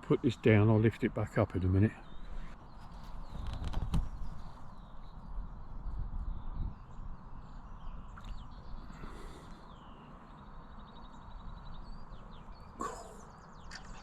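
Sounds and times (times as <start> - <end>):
small birds chirping: 0.0 - 14.0
bird trill: 6.2 - 14.0.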